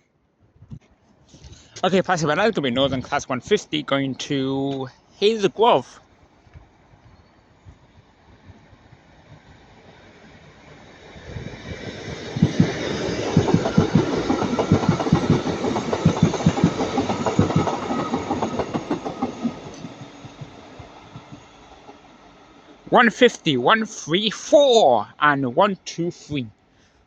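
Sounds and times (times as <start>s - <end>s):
diesel train passing: 1.8s - 26.8s
train wheels clicking over rail joints: 11.6s - 22.8s.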